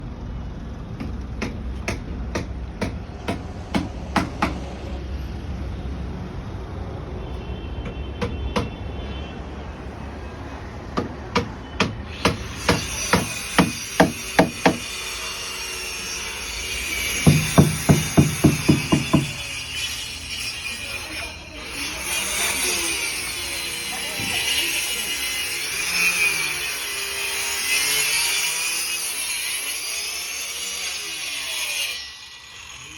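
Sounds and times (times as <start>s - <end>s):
hammer blows: 11.0s - 15.6s, 16.2s - 20.8s.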